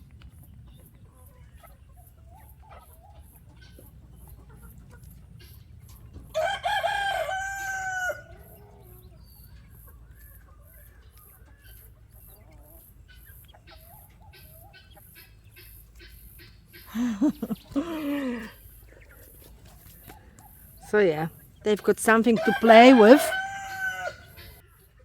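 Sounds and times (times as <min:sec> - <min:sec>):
rooster crowing: 0:06.3 - 0:08.6, 0:16.9 - 0:18.5, 0:22.3 - 0:24.6.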